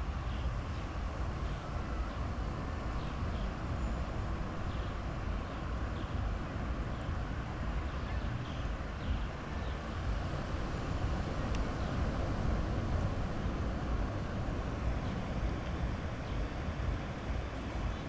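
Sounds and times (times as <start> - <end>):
sea surf washing onto beach: 8.7 - 18.0.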